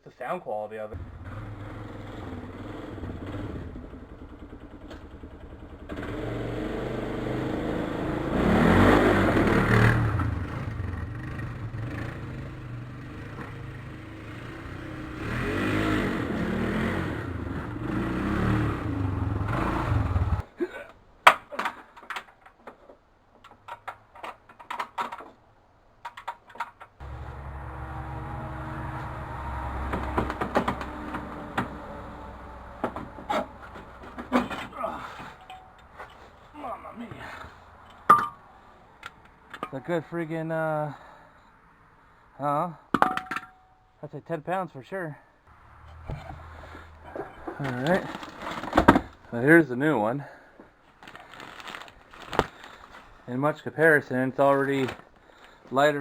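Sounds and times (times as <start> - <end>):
atv engine revving: 1.0 - 20.4, 27.0 - 35.0, 45.5 - 48.4.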